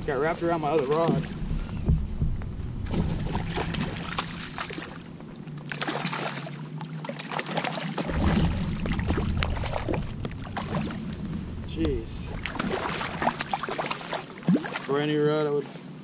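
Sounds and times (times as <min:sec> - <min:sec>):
wind rumble on microphone: 0:00.0 - 0:05.6, 0:08.1 - 0:15.2.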